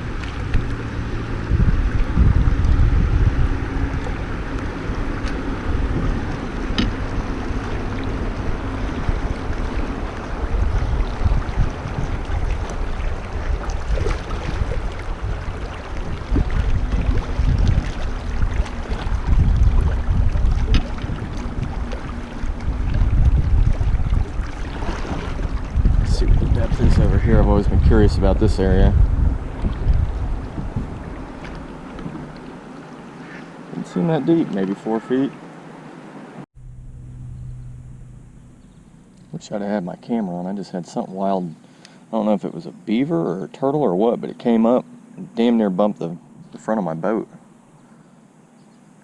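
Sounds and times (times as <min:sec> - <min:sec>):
river water rushing: 0:00.0 - 0:26.6, 0:29.4 - 0:36.5
wind buffeting microphone: 0:00.0 - 0:35.0
faint ticks: 0:41.8 - 0:42.0.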